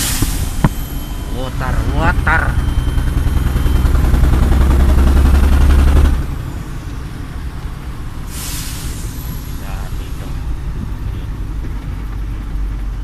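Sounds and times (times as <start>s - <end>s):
heavy vehicle engine running: 0.0s - 13.0s
burst of hiss: 8.3s - 10.2s.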